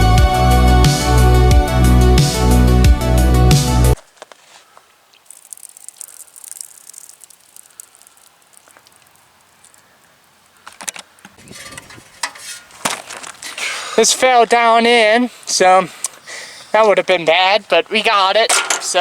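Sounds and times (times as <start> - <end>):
background music: 0.0 - 4.0
sharp clicks: 5.2 - 9.8
faint clicks and handling noises: 10.6 - 13.5.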